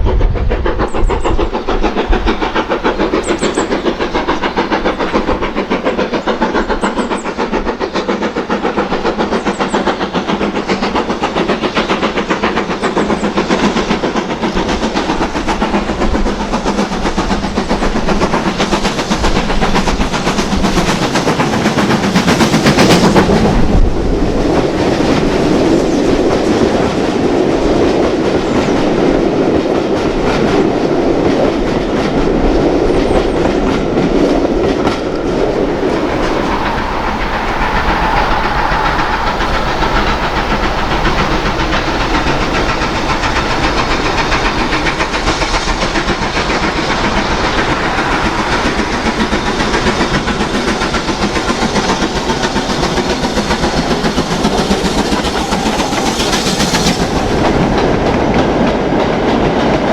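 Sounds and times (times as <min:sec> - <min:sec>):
train wheels clattering over rail joints: 0:00.0 - 0:26.9, 0:29.8 - 0:59.9
coaches rolling by: 0:34.3 - 0:57.9.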